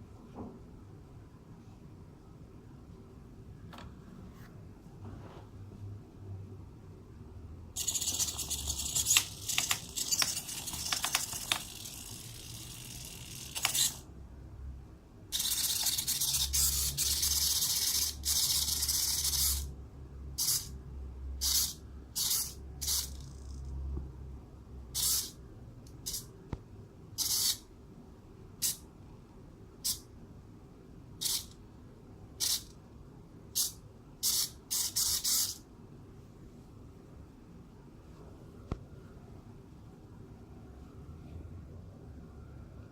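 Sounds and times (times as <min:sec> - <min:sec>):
servo motors whirring: 0:13.0 - 0:14.0.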